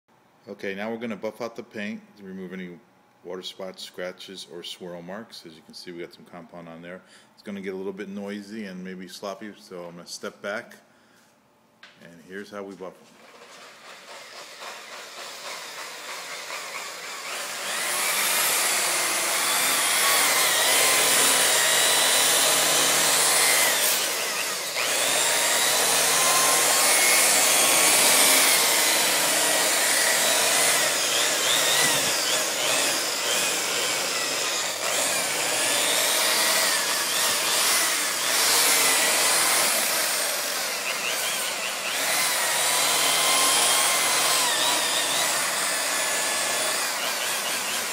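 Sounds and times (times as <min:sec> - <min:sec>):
power buffer whining: 0:13.2 - 0:47.9.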